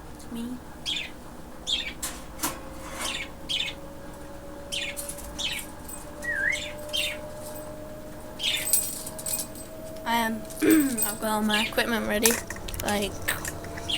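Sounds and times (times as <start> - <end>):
faint steady hum: 0.0 - 13.9
budgerigar chirping: 0.8 - 2.0, 3.0 - 4.0, 4.6 - 7.4, 8.4 - 8.8
bird whistle: 4.7 - 7.4, 8.4 - 8.8.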